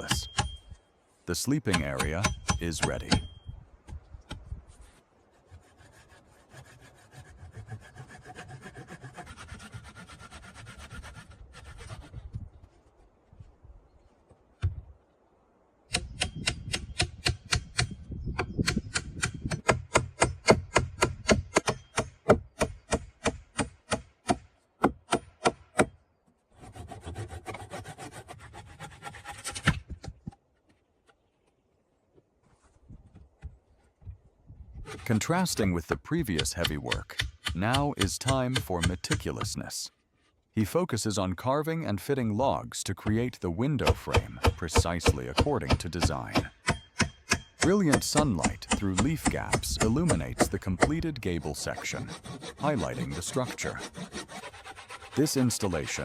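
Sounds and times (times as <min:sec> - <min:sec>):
hand saw cutting wood: 0:05.4 - 0:12.2, 0:26.6 - 0:29.8, 0:34.8 - 0:35.2, 0:36.3 - 0:39.5, 0:43.8 - 0:56.0.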